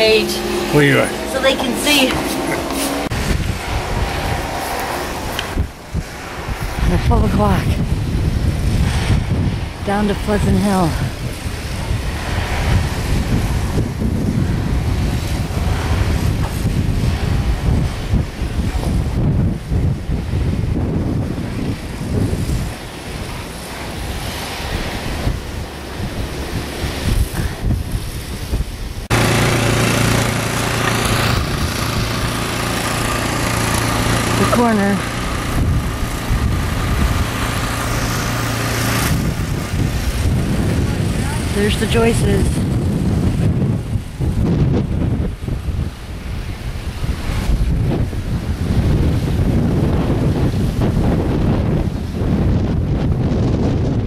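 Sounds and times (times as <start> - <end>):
vehicle engine running: 0.0 - 18.1, 29.1 - 44.4
wind buffeting microphone: 0.0 - 54.0.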